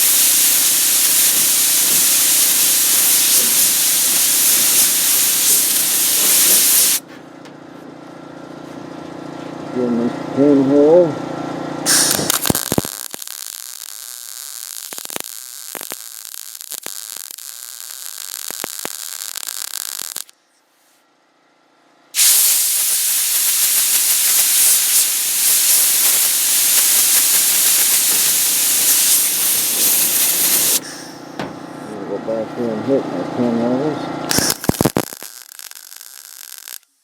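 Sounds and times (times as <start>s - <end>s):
welder arc hissing and crackling: 0.0s - 7.0s, 11.9s - 20.3s, 22.2s - 31.4s, 34.3s - 37.0s.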